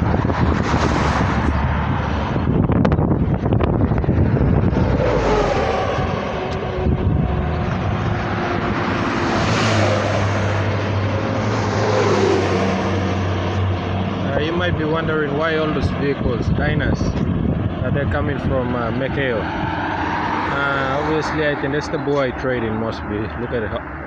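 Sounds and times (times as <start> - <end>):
road noise: 0.0 - 24.0
vehicle engine: 0.0 - 24.0.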